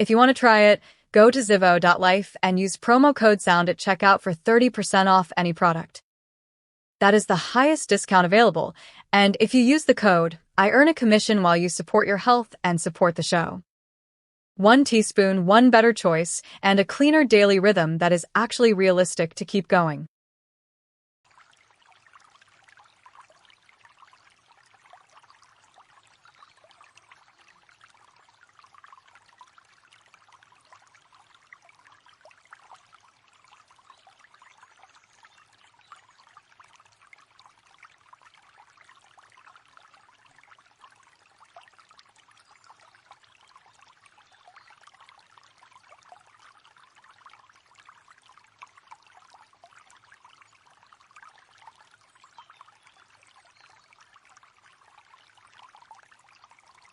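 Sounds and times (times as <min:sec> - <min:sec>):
running water trickling: 0:00.0 - 0:05.8, 0:21.3 - 0:56.9.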